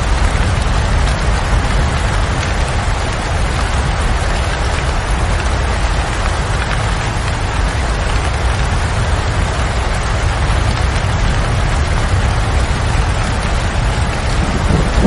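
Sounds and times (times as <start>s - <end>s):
steady rain falling: 0.0s - 15.0s
low rumble: 11.2s - 15.0s
thunder rolling: 11.7s - 15.0s.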